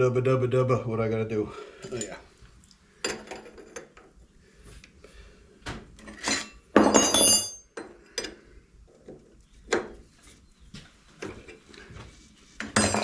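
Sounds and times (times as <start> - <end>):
metal tools knocking on workbench: 6.1 - 8.0, 12.6 - 13.0.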